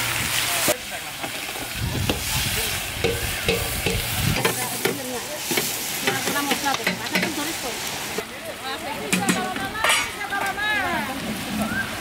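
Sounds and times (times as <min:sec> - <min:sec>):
paste sizzling in pan: 0:00.0 - 0:08.2
metal spatulas scraping pan: 0:09.2 - 0:10.2.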